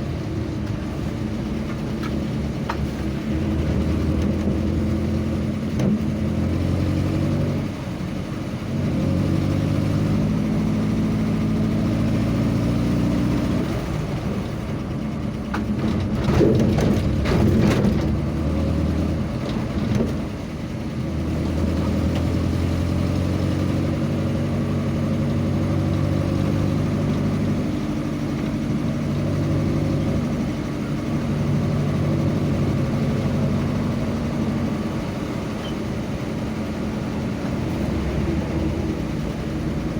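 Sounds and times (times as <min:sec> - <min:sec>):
road noise: 0:00.0 - 0:39.9
vehicle engine running: 0:00.0 - 0:39.9
rushing and clattering noise: 0:14.9 - 0:20.6.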